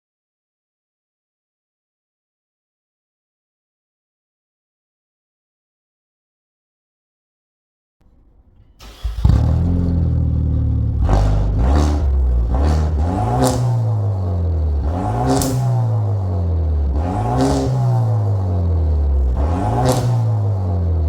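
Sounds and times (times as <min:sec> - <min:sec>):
car engine idling and revving: 0:08.0 - 0:21.0
car engine starting: 0:08.0 - 0:21.0.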